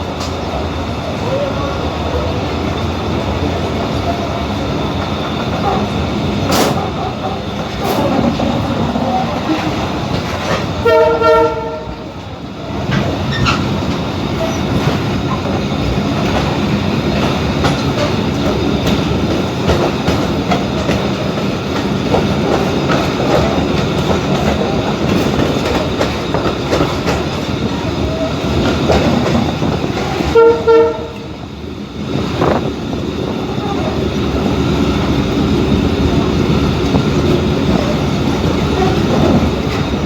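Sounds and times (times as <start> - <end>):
train rattling over rails: 0.0 - 40.0
train horn: 10.8 - 12.2, 30.2 - 31.4.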